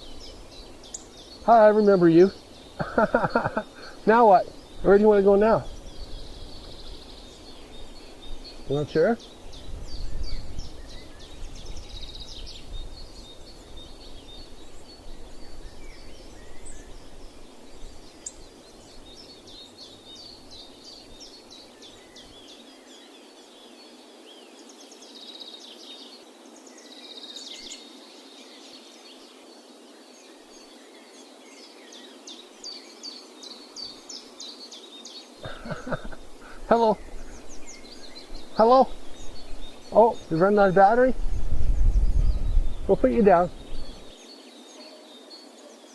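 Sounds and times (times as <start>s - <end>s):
songbirds chirping: 0.0s - 45.9s
wind rumble on microphone: 2.4s - 19.2s, 35.9s - 44.2s.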